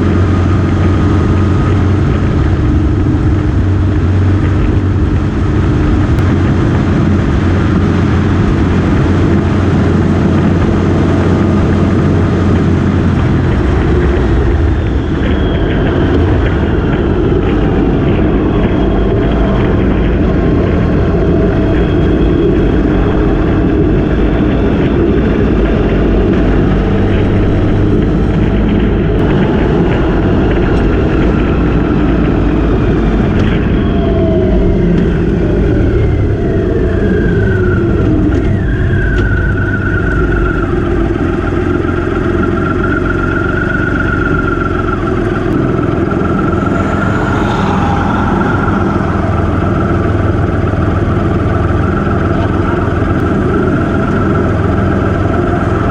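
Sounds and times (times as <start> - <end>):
motorcycle engine running: 0.0 - 34.0
wind noise on microphone: 0.0 - 55.9.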